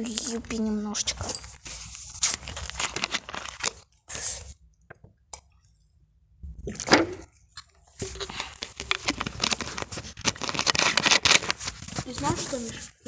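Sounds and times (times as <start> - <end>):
person sipping and gulping from bottle: 6.6 - 9.1.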